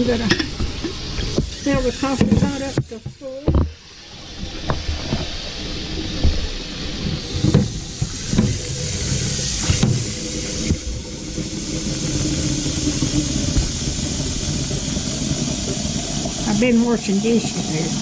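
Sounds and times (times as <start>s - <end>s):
pot knocking: 0.0s - 3.8s
tap water filling a pot: 0.0s - 18.0s.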